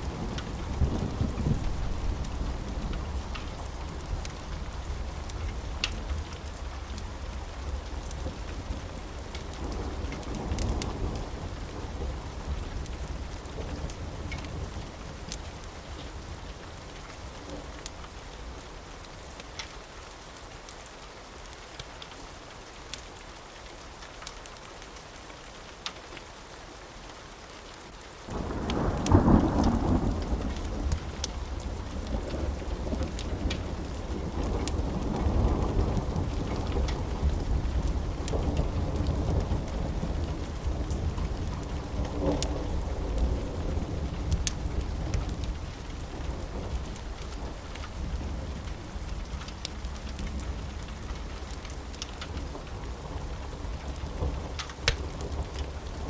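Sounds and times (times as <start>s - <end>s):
rolling thunder: 0.0s - 5.8s, 28.3s - 51.5s
steady rain: 0.0s - 56.0s.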